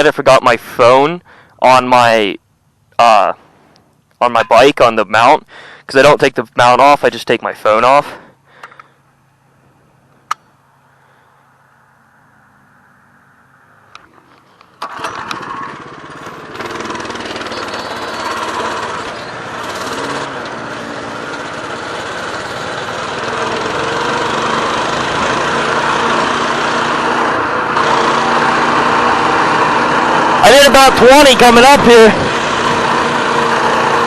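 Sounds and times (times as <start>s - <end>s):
small motorbike engine running: 14.8s - 34.0s.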